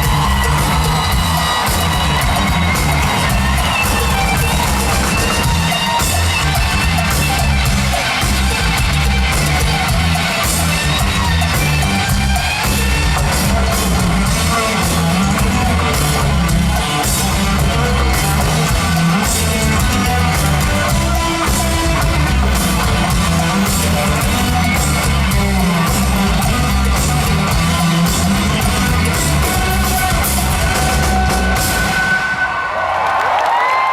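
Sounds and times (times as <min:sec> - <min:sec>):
rock band playing live: 0:00.0 - 0:32.4.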